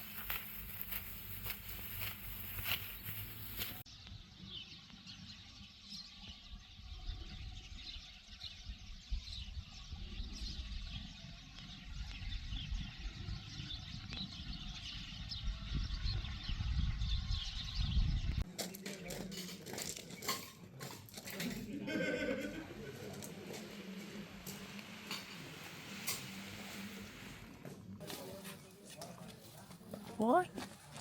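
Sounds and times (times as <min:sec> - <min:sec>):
low uneven rumble: 0:21.6 - 0:28.0.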